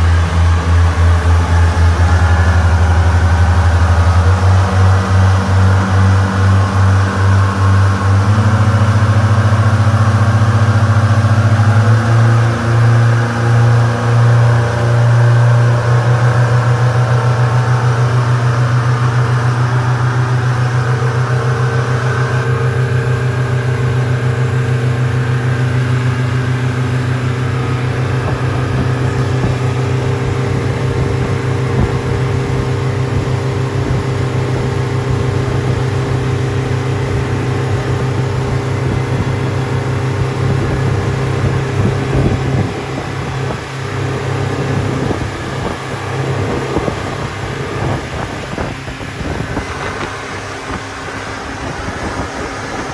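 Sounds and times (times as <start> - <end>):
boat engine humming: 0.0 - 52.9
rushing water and wind: 0.0 - 52.9.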